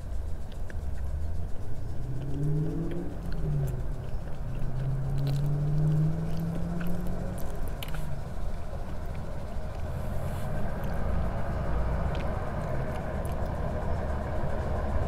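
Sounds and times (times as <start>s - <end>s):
low drone: 0.0s - 15.0s
low rumble: 0.0s - 15.0s
chewing food: 0.1s - 14.0s
wet mouth clicks: 2.2s - 8.1s.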